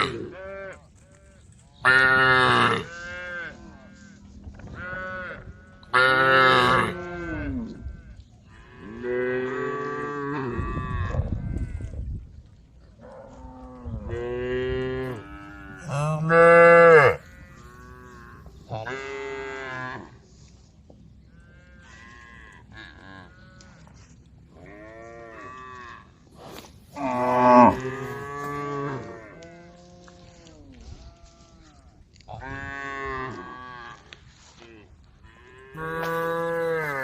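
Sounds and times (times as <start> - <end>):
cows mooing: 1.9 - 3.6, 4.8 - 7.7, 13.3 - 20.2, 26.9 - 30.4, 35.3 - 37.0.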